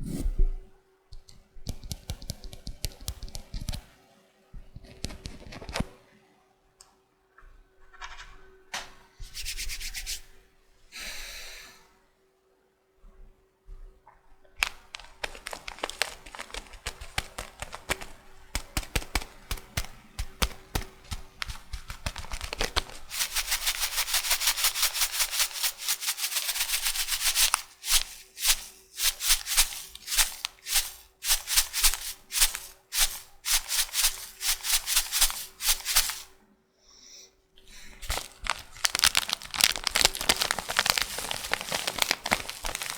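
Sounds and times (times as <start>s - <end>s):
shaving brush rubbing: 9.2s - 10.3s, 14.6s - 36.3s, 37.8s - 42.9s
packaging crinkling: 14.5s - 36.3s, 37.7s - 42.9s
packaging clicks: 14.6s - 24.4s, 37.8s - 42.9s.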